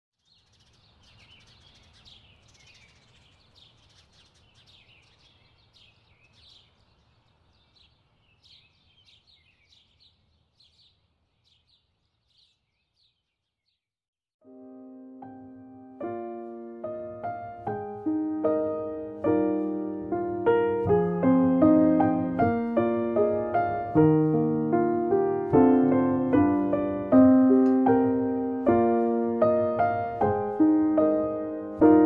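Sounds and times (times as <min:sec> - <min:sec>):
small birds chirping: 0:00.1 - 0:13.9.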